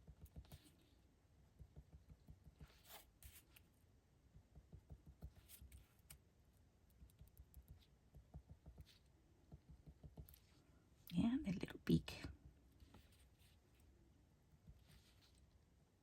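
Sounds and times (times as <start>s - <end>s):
pen scratching on paper: 2.3s - 3.6s, 5.1s - 6.2s.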